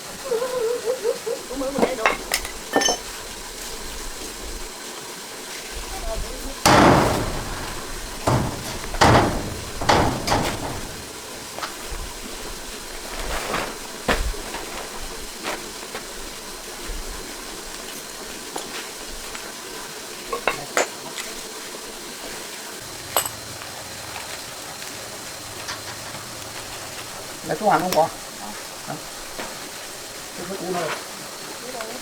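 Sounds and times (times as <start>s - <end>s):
metal tools clanking: 6.7s - 11.7s.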